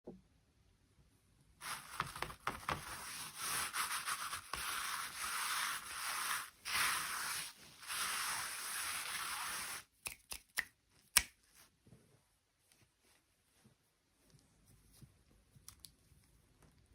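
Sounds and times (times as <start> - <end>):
rubbing or scraping strokes: 1.6 - 9.9.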